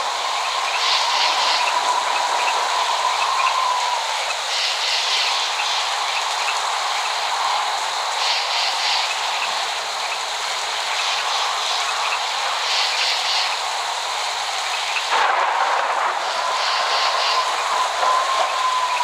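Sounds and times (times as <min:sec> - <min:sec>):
heavy rain hissing: 0:00.0 - 0:19.0
faint thin whistling tone: 0:17.0 - 0:19.0.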